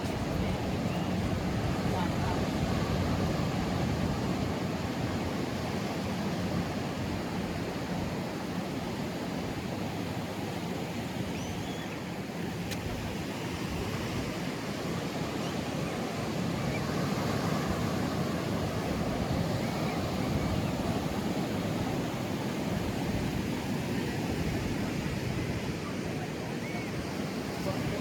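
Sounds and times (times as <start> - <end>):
waves breaking on beach: 0.0 - 11.3, 12.0 - 28.0.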